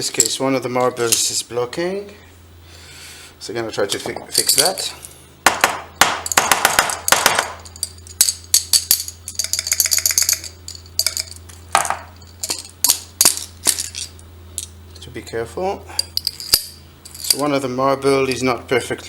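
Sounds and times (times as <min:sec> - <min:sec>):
glass marbles clinking in test tube: 0:07.6 - 0:11.5.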